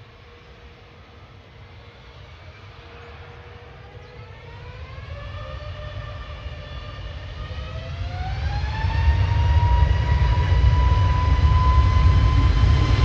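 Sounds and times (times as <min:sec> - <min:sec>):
jet engine whine: 0:00.0 - 0:13.0.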